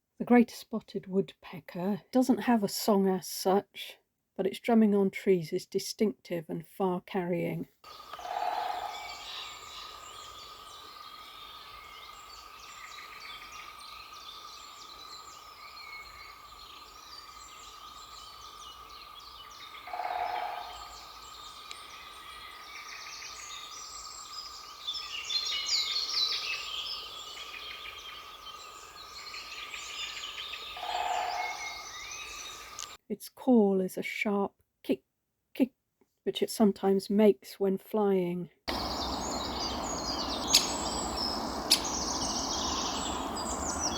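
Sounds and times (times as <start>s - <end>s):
woodpecker drumming on wood: 7.9s - 9.9s, 19.9s - 21.2s, 38.7s - 43.9s
songbirds singing: 7.9s - 33.0s, 38.7s - 43.9s.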